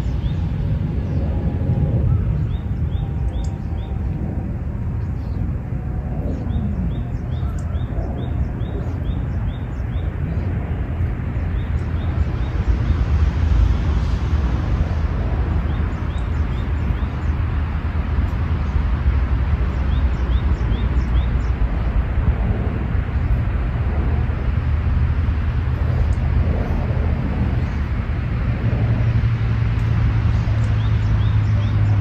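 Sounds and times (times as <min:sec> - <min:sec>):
bird chirping: 0:00.0 - 0:01.4, 0:02.1 - 0:04.2, 0:06.2 - 0:13.2, 0:15.5 - 0:18.9, 0:19.5 - 0:22.0, 0:30.3 - 0:32.0
low rumble of distant noise: 0:00.0 - 0:32.0.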